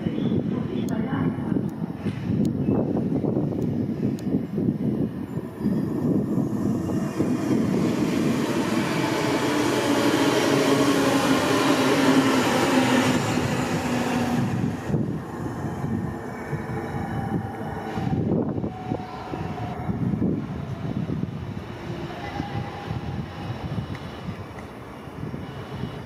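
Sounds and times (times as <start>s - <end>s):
train wheels on rails: 1.7s - 26.0s
station noise: 5.2s - 26.0s.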